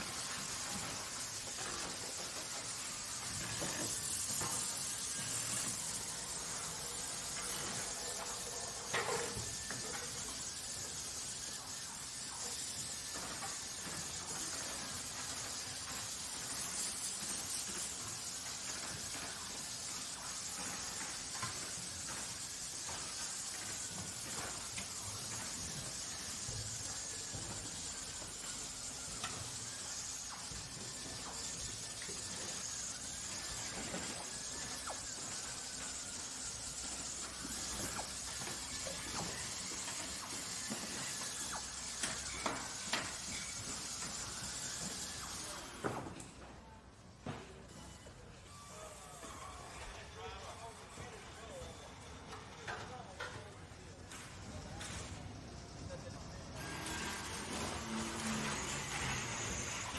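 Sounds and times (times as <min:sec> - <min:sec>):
steady hiss: 0:00.0 - 0:45.9.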